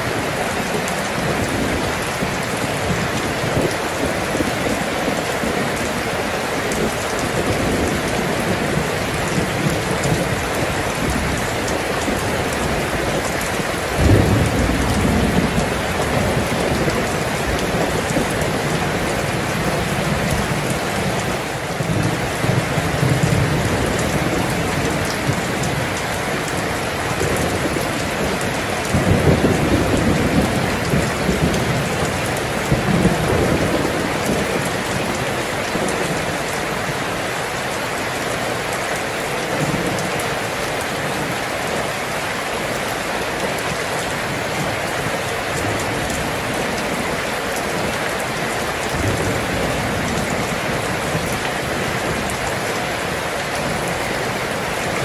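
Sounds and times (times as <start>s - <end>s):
heavy rain hissing: 0.0s - 55.0s
thunder rolling: 13.6s - 19.5s.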